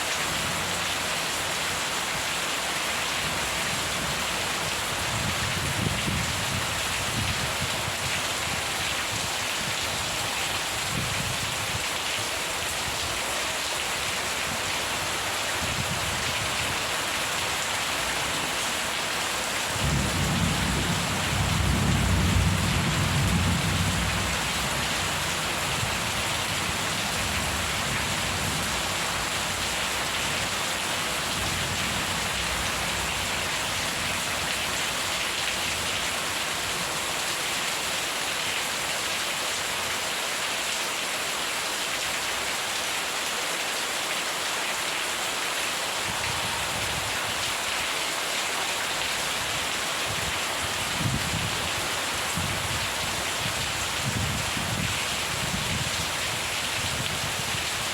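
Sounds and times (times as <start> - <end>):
heavy rain: 0.0 - 57.9.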